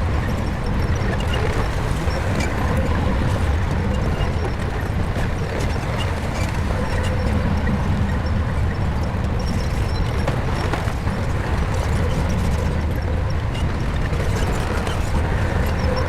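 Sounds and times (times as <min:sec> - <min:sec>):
bulldozer diesel engine: 0:00.0 - 0:16.0.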